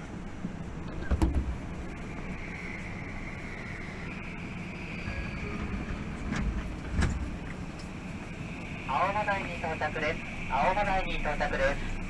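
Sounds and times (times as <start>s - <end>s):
electric train rumbling: 0.0s - 12.0s
high whine of train: 0.0s - 12.0s
train knock: 0.7s - 2.6s, 4.8s - 8.0s.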